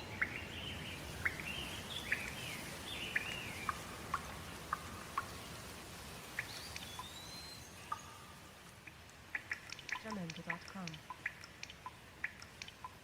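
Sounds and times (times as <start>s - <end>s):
birds chirping: 0.0s - 13.0s
rain hiss: 0.0s - 13.0s
sharp ticks: 8.8s - 13.0s.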